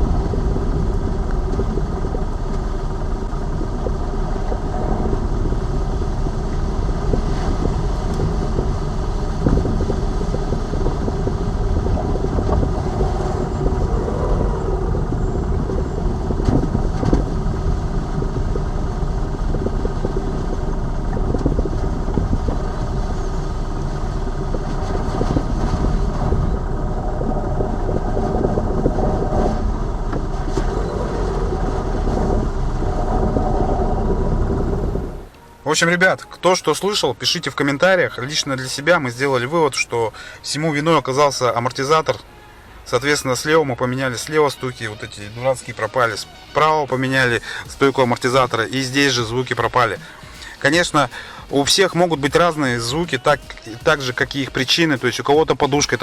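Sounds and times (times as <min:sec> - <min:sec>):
car engine running: 0:00.0 - 0:35.6, 0:47.2 - 0:56.0
road rumble: 0:00.0 - 0:56.0.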